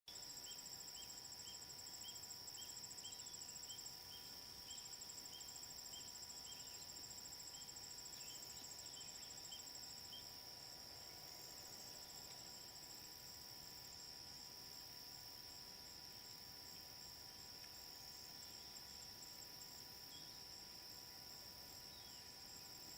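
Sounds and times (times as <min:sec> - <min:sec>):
insects trilling: 0:00.1 - 0:22.9.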